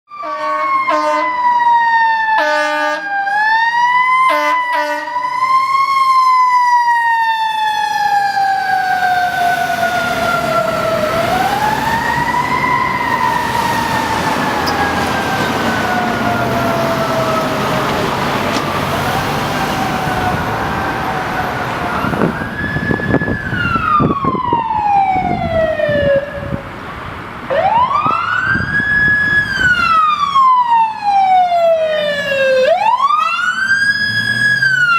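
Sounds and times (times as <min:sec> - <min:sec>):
air horn blasts: 0:00.1 - 0:01.4, 0:02.4 - 0:03.1, 0:04.3 - 0:05.2.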